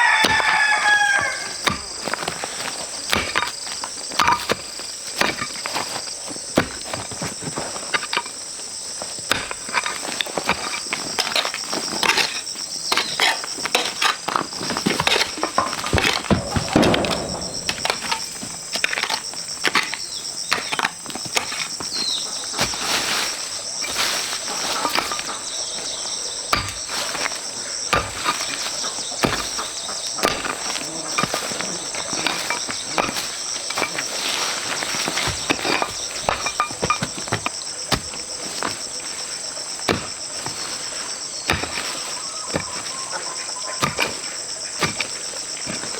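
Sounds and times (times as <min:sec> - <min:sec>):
insects droning: 0:00.0 - 0:45.9
footsteps: 0:14.4 - 0:19.2
knocks and clatters: 0:14.8 - 0:19.9.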